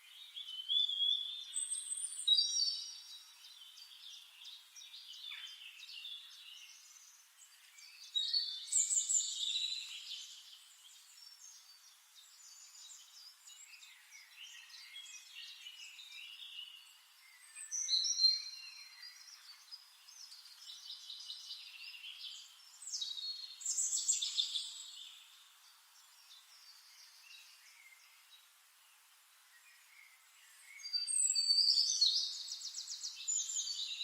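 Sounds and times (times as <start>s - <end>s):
birds chirping and singing: 0.0s - 28.5s, 29.6s - 34.0s.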